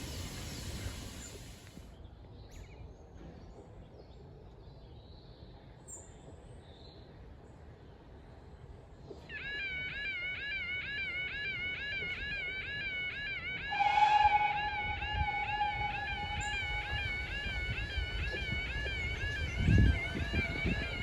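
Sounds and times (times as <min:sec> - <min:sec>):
level crossing yodel alarm: 0:09.4 - 0:21.0.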